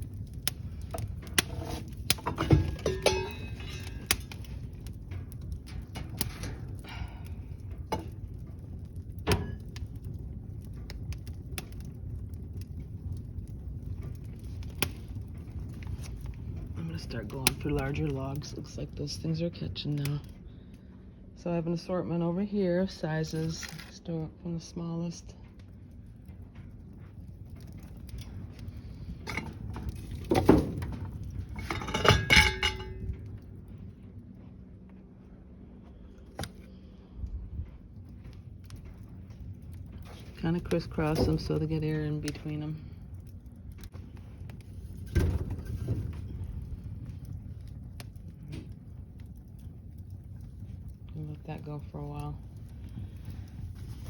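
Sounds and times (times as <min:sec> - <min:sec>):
fire crackling with sharp pops: 0:00.0 - 0:54.0
low rumble of flames: 0:00.0 - 0:54.0
logs knocking against wood and metal: 0:00.4 - 0:04.5, 0:07.8 - 0:11.8.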